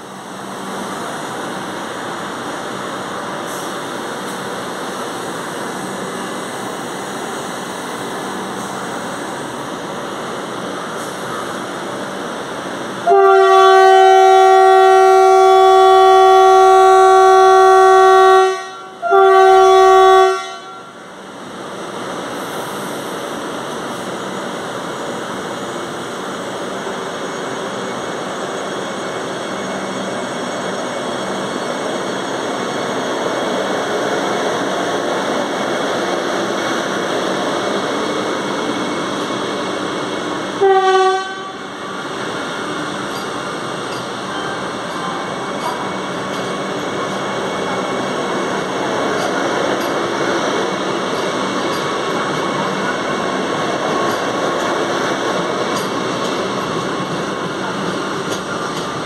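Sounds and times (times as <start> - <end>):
train wheels on rails: 0.0 - 59.0
train horn blasts: 13.0 - 20.9, 40.6 - 41.7.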